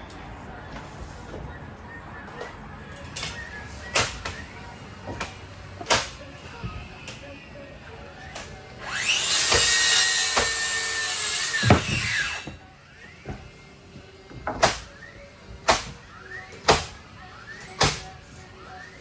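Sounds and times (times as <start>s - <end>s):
power saw cutting timber: 8.4s - 17.0s.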